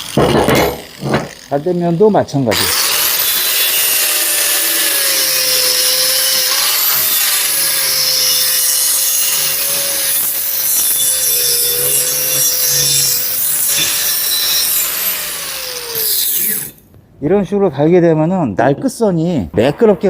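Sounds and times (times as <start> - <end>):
angle grinder grinding steel: 0.0 - 16.8.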